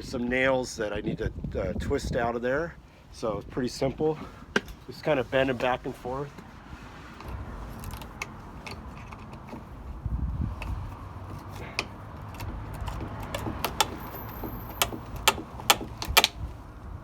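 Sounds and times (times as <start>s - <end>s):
nails bent and twisted out: 10.6s - 16.6s.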